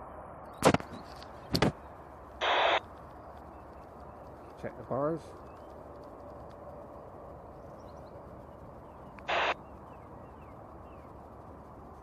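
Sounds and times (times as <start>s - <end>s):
low background hiss: 0.0s - 12.0s
radio hiss burst: 2.4s - 2.8s, 9.2s - 9.6s.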